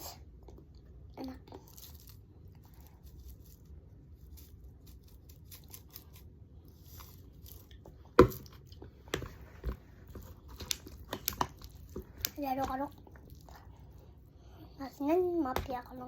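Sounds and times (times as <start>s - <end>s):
chewing: 10.2s - 14.2s.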